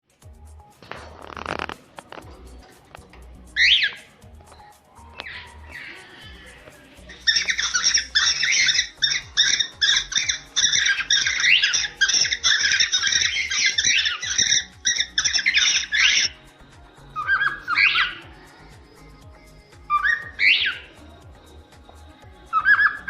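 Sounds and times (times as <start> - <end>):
cockatiels chirping and squawking: 7.1 - 16.4, 17.2 - 18.2, 19.9 - 20.9.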